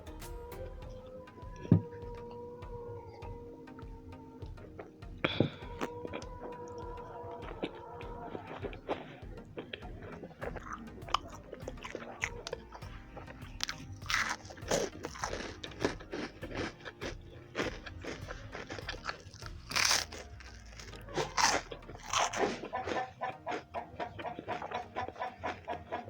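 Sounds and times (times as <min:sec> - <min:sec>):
person chewing food: 0:00.0 - 0:26.0
crunching bites: 0:04.5 - 0:26.0.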